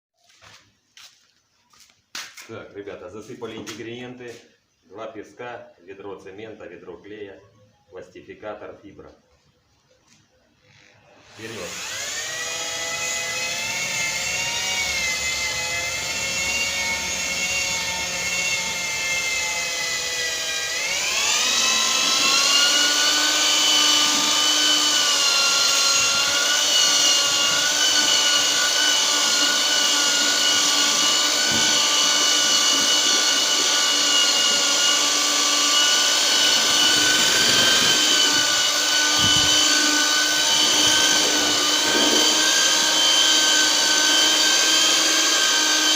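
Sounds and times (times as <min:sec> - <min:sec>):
electric mixer motor whining: 0:10.9 - 0:45.9.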